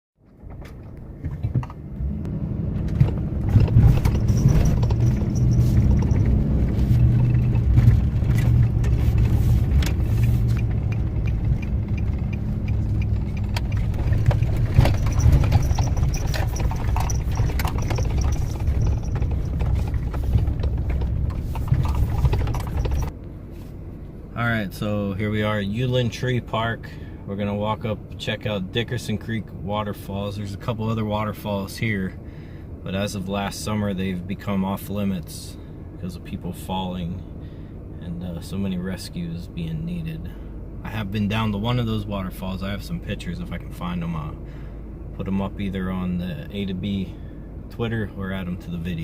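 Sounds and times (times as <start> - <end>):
car engine and road rumble: 0.2 - 49.0
small clicks and rattles: 3.0 - 23.1.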